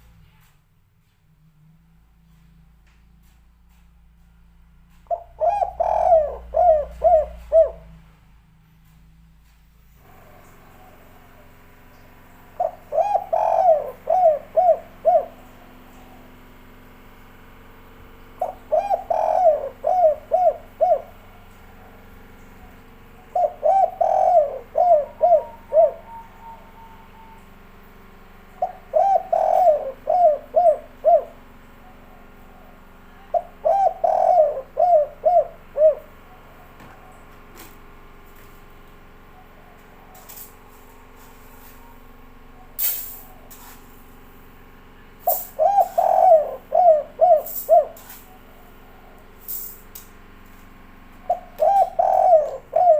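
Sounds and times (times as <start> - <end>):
dove cooing: 5.0 - 8.2, 12.5 - 16.6, 18.4 - 27.5, 28.4 - 37.6, 45.2 - 49.6, 51.3 - 52.9.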